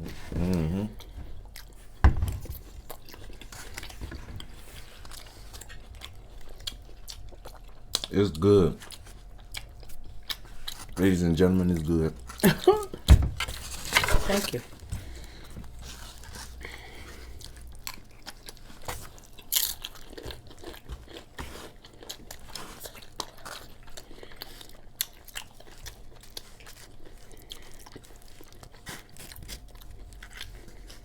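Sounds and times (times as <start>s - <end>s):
crunching and chewing chips: 0.0s - 31.0s.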